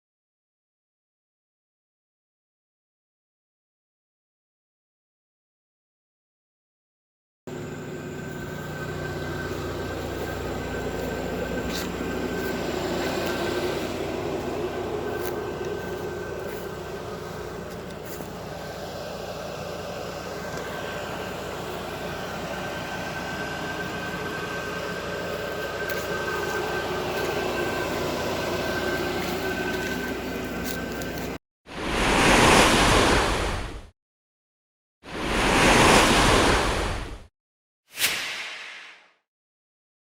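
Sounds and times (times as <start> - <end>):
brush cutter engine running: 7.5 - 31.4.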